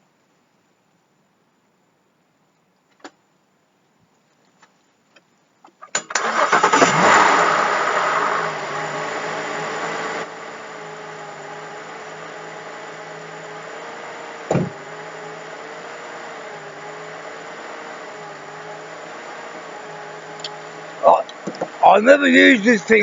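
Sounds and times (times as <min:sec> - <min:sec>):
car engine starting and idling: 0:05.6 - 0:23.0.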